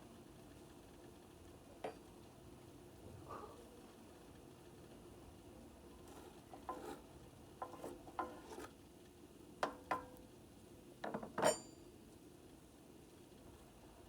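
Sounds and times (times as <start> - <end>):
clinks and knocks on small vessel: 9.6 - 10.1, 11.0 - 11.8.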